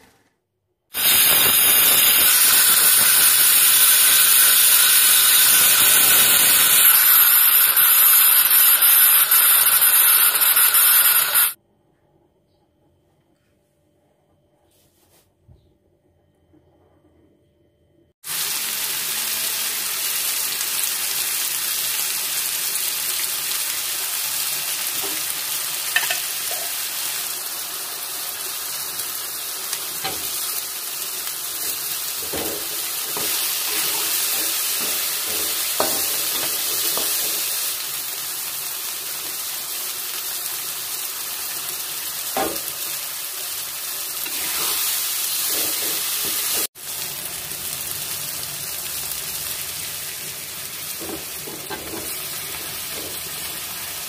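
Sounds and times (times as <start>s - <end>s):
spice paste sizzling in oil: 1.0s - 11.6s, 18.2s - 54.0s
metal spatula scraping wok: 25.9s - 26.8s, 31.6s - 37.7s, 44.2s - 46.7s, 51.0s - 53.5s.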